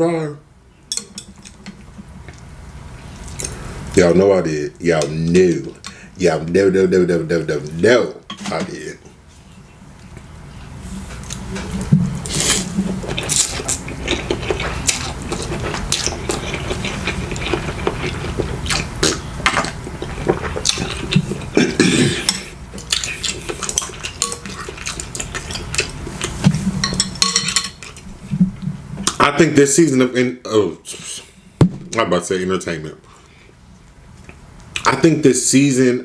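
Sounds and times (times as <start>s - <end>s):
steady low hum: 0.0s - 36.0s
cutlery clinking on dishes: 0.9s - 1.6s, 26.8s - 27.8s.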